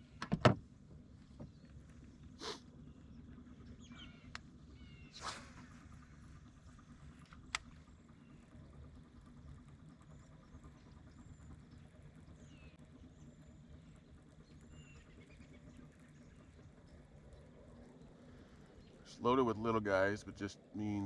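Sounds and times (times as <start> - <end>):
faint bird chirps: 1.5 - 6.3, 9.8 - 19.2.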